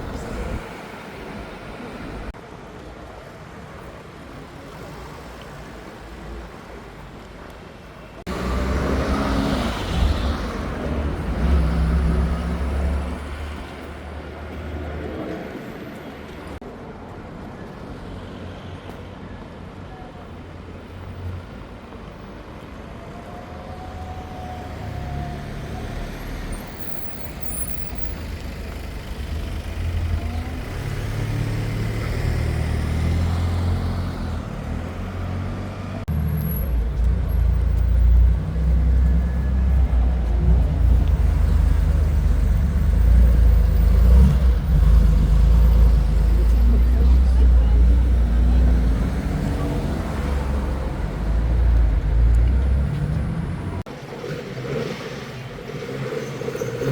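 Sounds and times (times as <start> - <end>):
street traffic: 0.0 - 56.9
car engine rumbling: 27.9 - 53.9.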